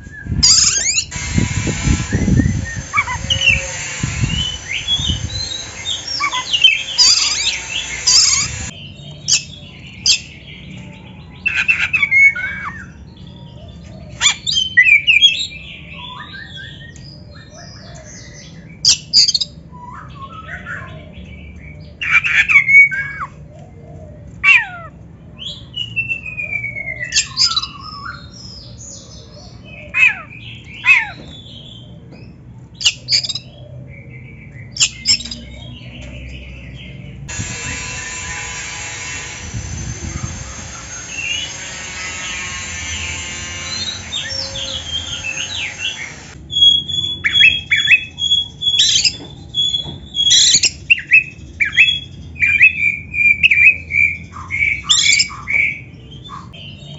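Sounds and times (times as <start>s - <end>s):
songbird whistling and chirping: 0.0s - 23.5s, 25.4s - 37.0s, 43.6s - 56.9s
steady low hum: 0.3s - 8.8s, 37.2s - 46.5s.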